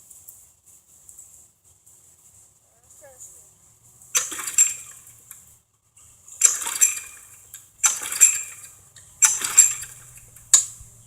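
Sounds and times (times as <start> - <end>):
engine turning over: 4.1 - 5.5, 6.4 - 11.0
mower recoil starter pulls: 4.2 - 5.5, 6.3 - 11.0.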